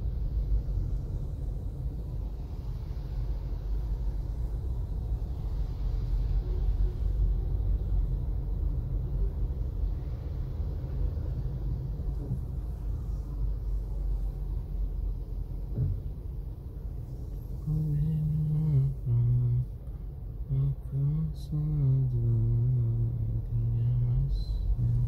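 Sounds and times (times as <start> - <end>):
car engine rumble: 0.0 - 25.0
road noise inside car: 0.0 - 25.0
soft knock: 15.7 - 16.1.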